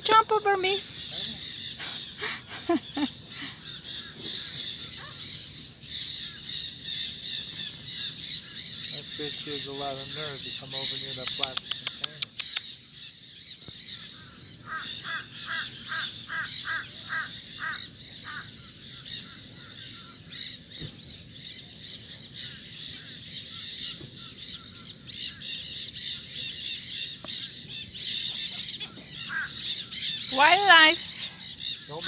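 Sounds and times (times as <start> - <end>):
harsh cawing bird calls: 0.1 - 32.0.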